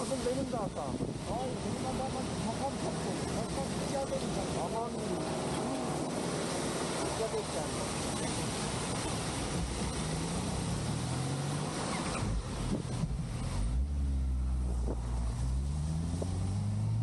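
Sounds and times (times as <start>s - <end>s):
wind noise on microphone: 0.0s - 2.6s, 8.0s - 13.8s, 14.5s - 17.0s
motorcycle engine accelerating: 10.3s - 17.0s.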